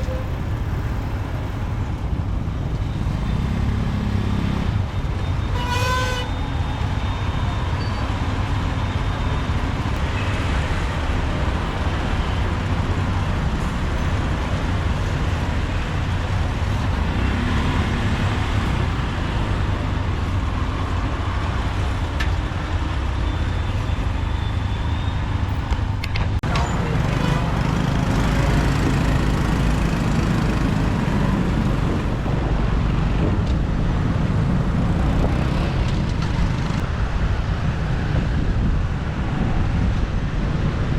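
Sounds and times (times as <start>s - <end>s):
motorbike engine and road noise: 0.0s - 40.9s
horn toot: 5.4s - 6.4s.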